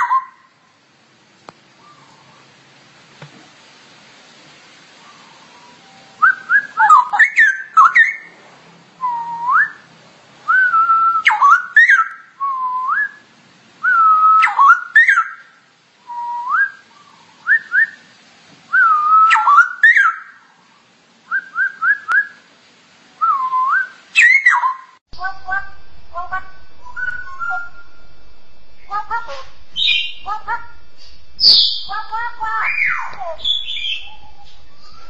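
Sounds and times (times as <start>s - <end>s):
bulbul singing whistled phrases: 0.0s - 0.5s, 5.0s - 8.3s, 10.5s - 15.5s, 16.1s - 18.1s, 18.7s - 20.4s, 21.3s - 22.4s, 23.2s - 35.0s.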